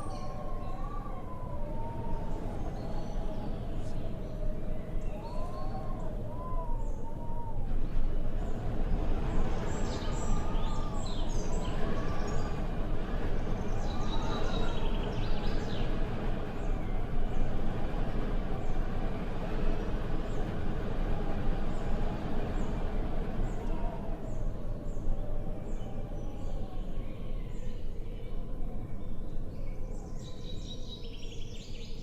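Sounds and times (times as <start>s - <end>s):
wind blowing with deep rumble: 0.0s - 32.0s
small birds chirping: 8.3s - 17.8s.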